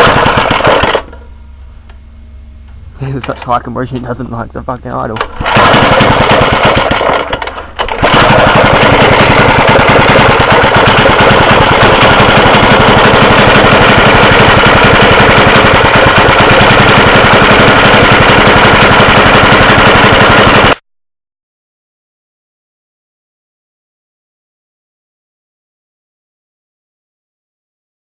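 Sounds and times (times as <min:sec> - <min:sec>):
two-stroke engine running: 0:00.0 - 0:01.3, 0:05.2 - 0:20.8.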